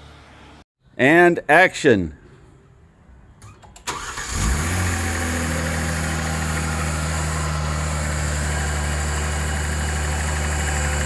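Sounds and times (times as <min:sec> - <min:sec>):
car engine starting and idling: 0:03.8 - 0:11.0.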